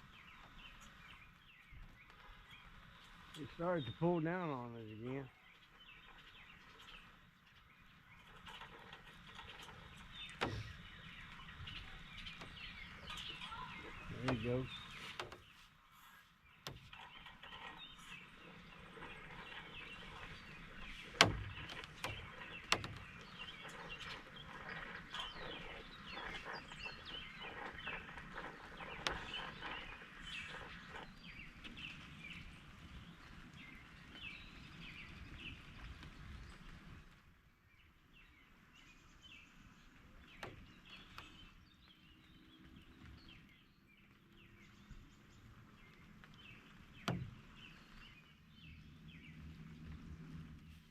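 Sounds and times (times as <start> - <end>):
birds chirping and calling: 0.1 - 35.9
sharp knocks: 21.2 - 23.0.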